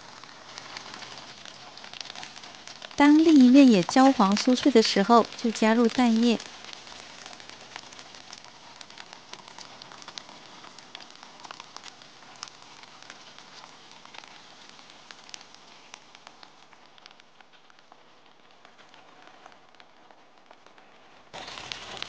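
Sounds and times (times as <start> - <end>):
oil sizzling in a frying pan: 0.0 - 16.7
small crackling pops: 0.0 - 22.0.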